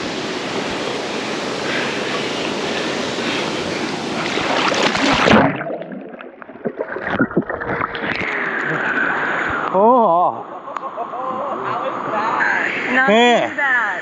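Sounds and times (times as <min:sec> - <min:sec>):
water splashing: 0:00.0 - 0:09.6
waterfall rushing into pool: 0:00.0 - 0:10.3.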